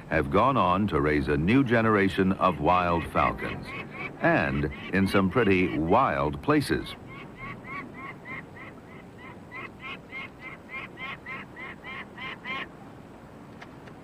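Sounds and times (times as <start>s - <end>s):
falcon cacking call: 2.4s - 12.7s.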